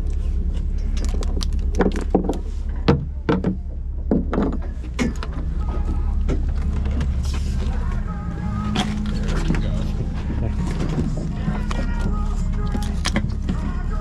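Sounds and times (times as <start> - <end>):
boat engine droning: 0.0 - 14.0
sharp knocks and clatter: 1.0 - 5.4.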